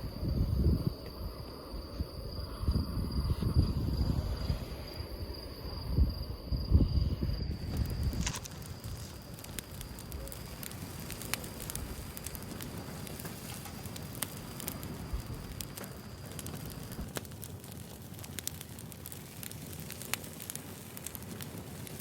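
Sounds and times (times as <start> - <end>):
firewood crackling and popping: 5.4 - 22.0.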